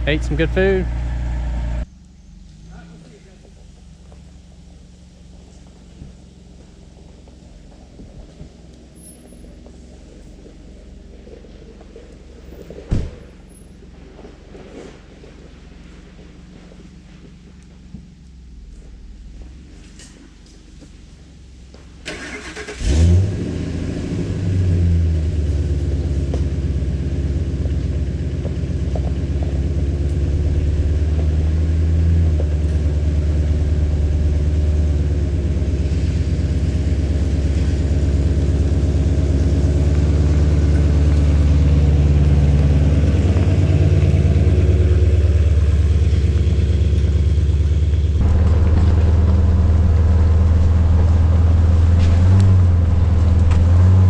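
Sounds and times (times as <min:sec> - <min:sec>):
truck engine starting and idling: 0:00.0 - 0:54.0.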